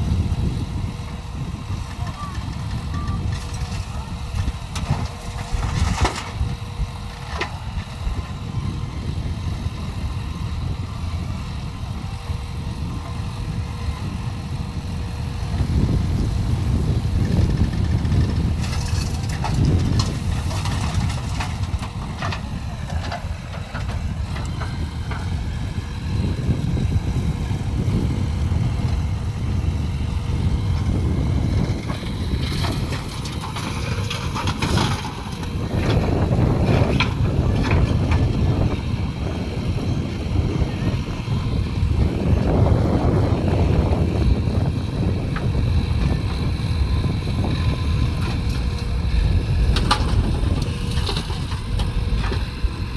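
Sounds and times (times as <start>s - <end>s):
diesel engines rumbling: 0.0s - 52.9s.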